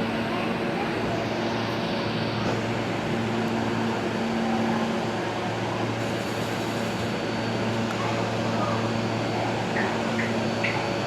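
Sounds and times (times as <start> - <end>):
subway car equipment humming: 0.0 - 11.0.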